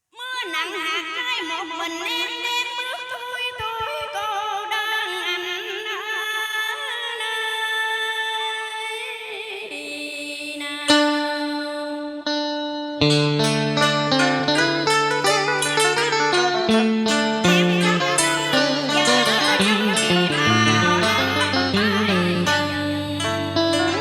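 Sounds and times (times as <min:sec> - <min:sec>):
person singing with vibrato: 0:08.4 - 0:24.0
instrumental backing: 0:12.3 - 0:24.0
bright plucked note: 0:13.0 - 0:24.0.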